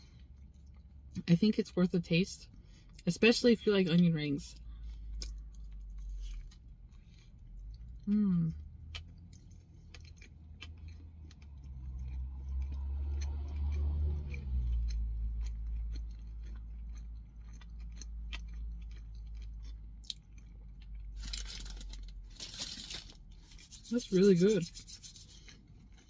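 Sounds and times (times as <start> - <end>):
person chewing: 0.0 - 1.1, 4.6 - 26.0
short rustling rub: 22.4 - 25.5.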